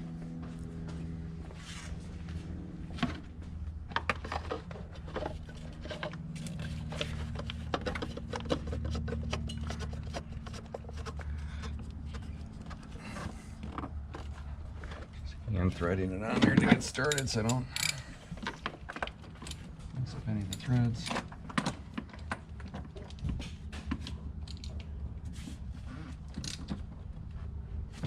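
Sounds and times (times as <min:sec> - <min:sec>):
steady low hum: 0:00.0 - 0:28.0
tools and parts clicking and rattling: 0:03.8 - 0:15.3, 0:16.2 - 0:25.0, 0:26.3 - 0:26.9.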